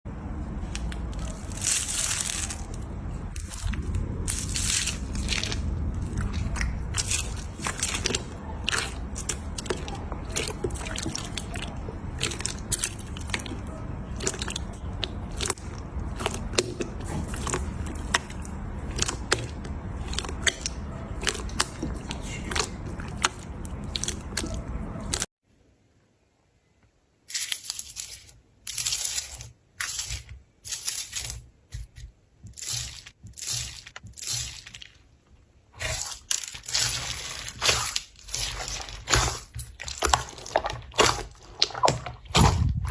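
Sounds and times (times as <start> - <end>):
slime squishes: 0.2 - 25.3, 27.3 - 42.9
slime crackling and popping: 0.7 - 25.3, 32.5 - 35.0, 35.7 - 42.9.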